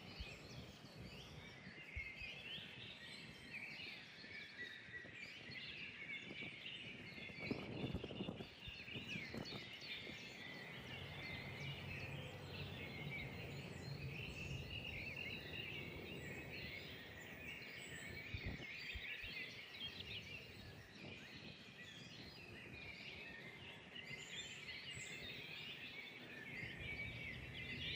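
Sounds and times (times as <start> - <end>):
small birds chirping: 0.0 - 27.9
faint low hum: 10.1 - 18.6
low rumbles: 10.2 - 18.4.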